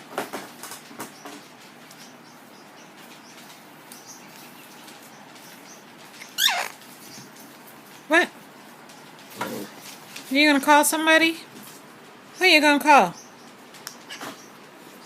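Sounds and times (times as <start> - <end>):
parrot squawk: 6.2 - 6.8.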